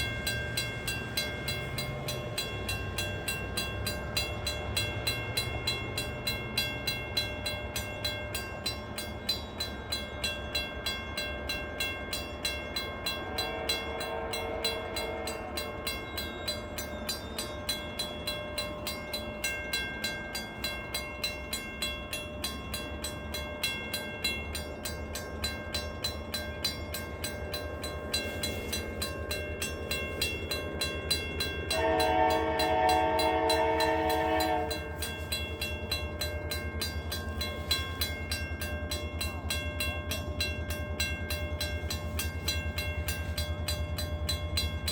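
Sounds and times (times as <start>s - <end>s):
locomotive horn: 13.3s - 15.7s, 31.7s - 35.0s.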